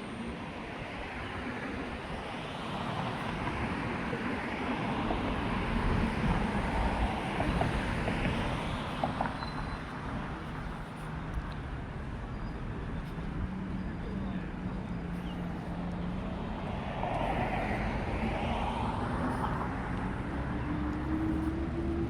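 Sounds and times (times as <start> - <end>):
vehicle passing by: 15.0 - 22.0.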